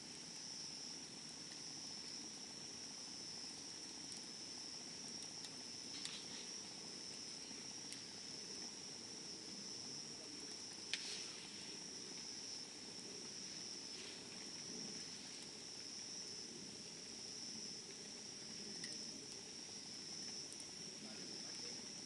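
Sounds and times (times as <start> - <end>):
bonfire crackling: 0.0 - 22.0
high-pitched insect trill: 1.6 - 22.0.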